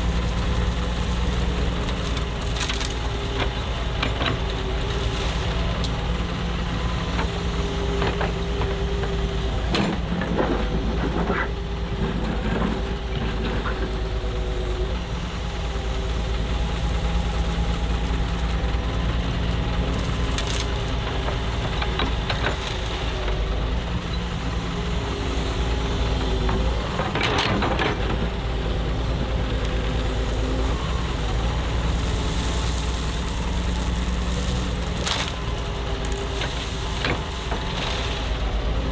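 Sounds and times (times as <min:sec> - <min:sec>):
excavator diesel engine running: 0:00.0 - 0:38.9
knocks and clatter: 0:26.4 - 0:28.4.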